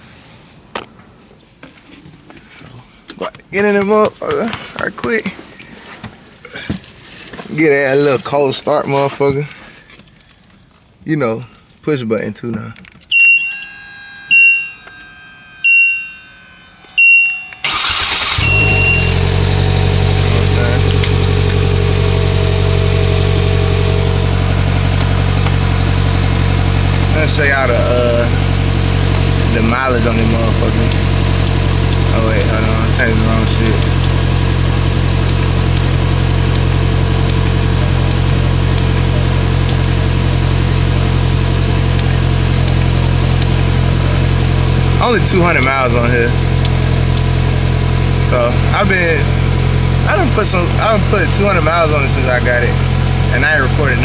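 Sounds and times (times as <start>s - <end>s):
dashboard chime beeping: 13.1s - 22.2s
engine idling: 13.1s - 54.0s
starter motor cranking: 13.1s - 54.0s.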